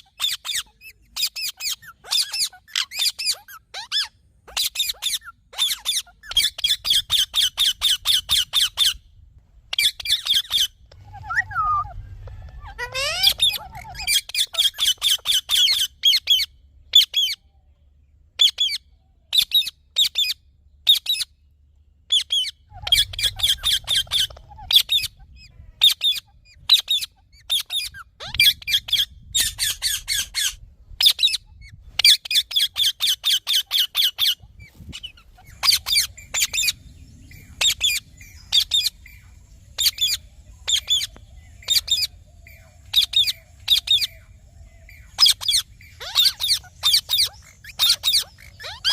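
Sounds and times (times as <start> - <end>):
parakeet shrill squawks: 0.0 - 9.0, 9.7 - 17.4, 22.1 - 36.8, 39.8 - 42.2, 42.9 - 44.2, 45.1 - 48.9.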